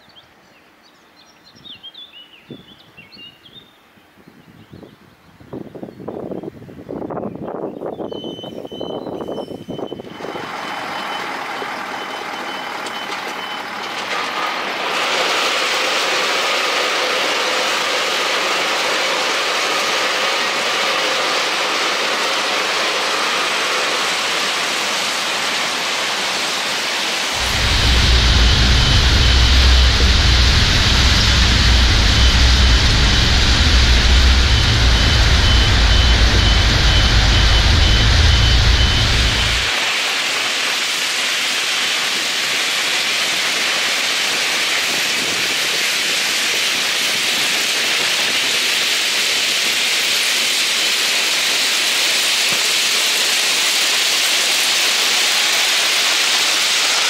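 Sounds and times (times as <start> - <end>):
reversing alarm beeping: 8.2 - 14.4, 27.4 - 39.8
tipper truck running: 9.8 - 24.9, 27.3 - 40.1
deep rumble: 27.3 - 39.8.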